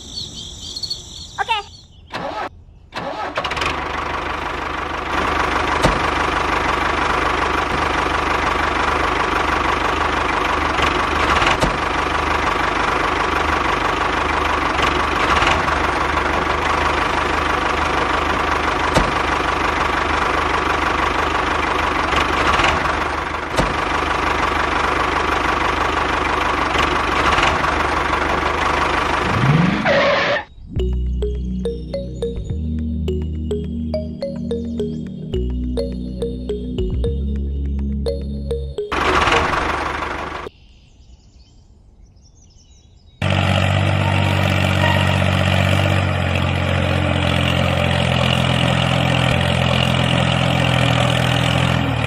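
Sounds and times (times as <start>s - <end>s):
mini tractor engine running: 2.2s - 29.4s, 38.9s - 40.5s.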